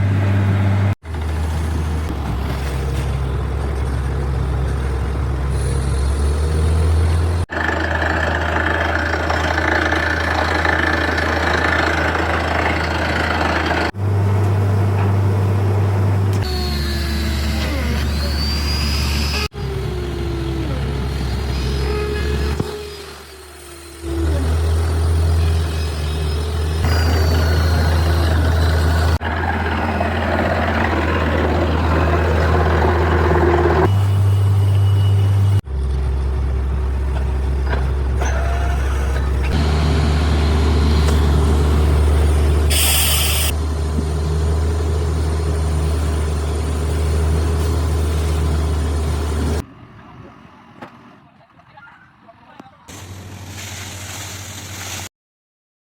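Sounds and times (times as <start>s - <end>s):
drilling rig engine drone: 5.5s - 49.6s
brief hiss: 42.7s - 43.5s, 52.9s - 55.1s.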